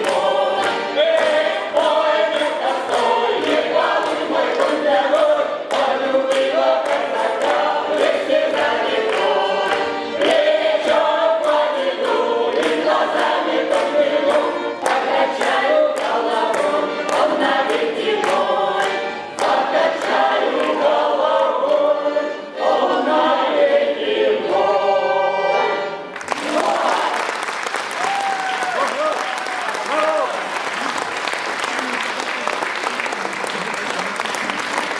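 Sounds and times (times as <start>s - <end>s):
choir singing folk song: 0.0s - 27.7s.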